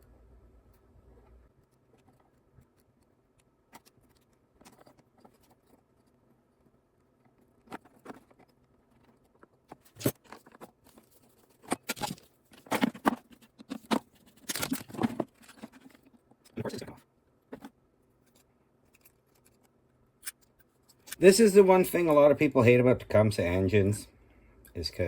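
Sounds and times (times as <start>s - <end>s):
hands handling small engine parts: 1.6s - 16.8s.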